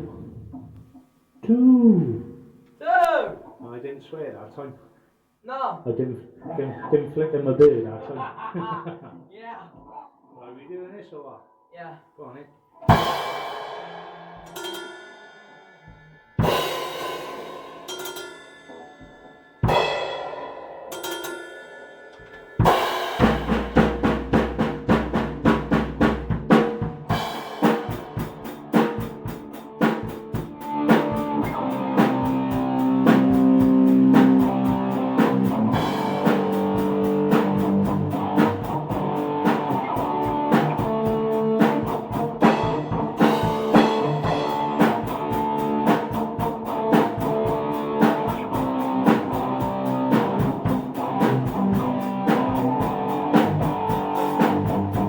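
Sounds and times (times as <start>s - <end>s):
rock band playing: 12.8s - 15.5s, 16.4s - 55.0s
guitar strumming chords: 22.6s - 24.3s, 26.3s - 55.0s.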